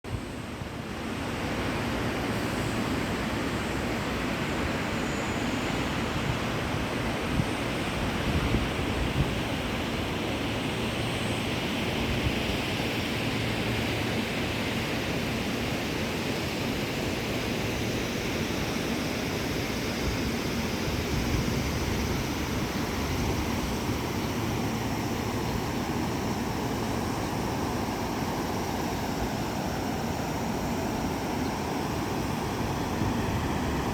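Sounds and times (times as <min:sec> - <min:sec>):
river water rushing: 0:20.5 - 0:33.9.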